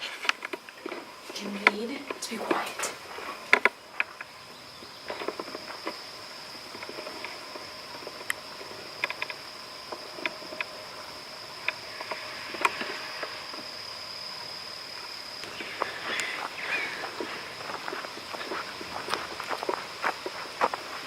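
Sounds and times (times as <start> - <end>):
light clicks and crunches: 0.0 - 6.0
insects chirring: 0.0 - 21.0.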